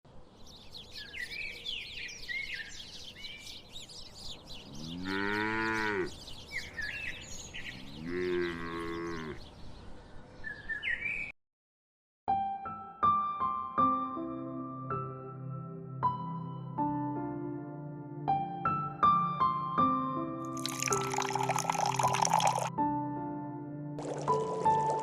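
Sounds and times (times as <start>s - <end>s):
birds chirping: 0.1s - 11.3s
cow mooing: 4.7s - 6.2s, 7.7s - 9.4s.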